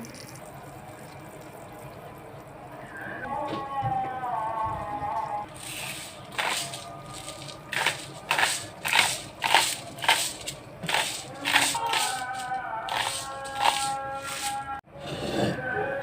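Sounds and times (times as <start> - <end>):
crisp crunching: 5.5 - 14.7.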